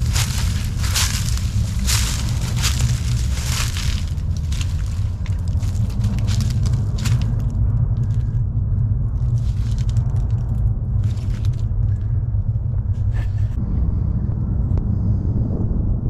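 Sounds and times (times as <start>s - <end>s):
short crunching noises: 0.0s - 8.4s
steady low rumble: 0.0s - 16.0s.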